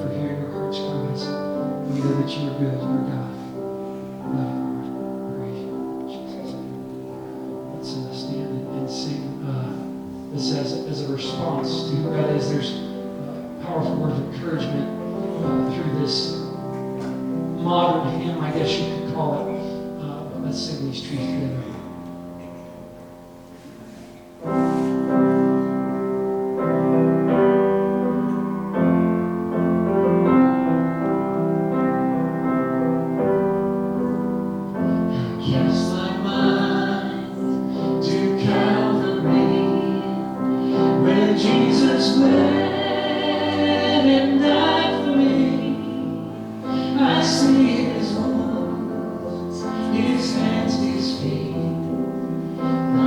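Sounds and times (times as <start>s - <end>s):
keyboard playing chords: 0.0s - 53.0s
people singing: 35.1s - 52.0s.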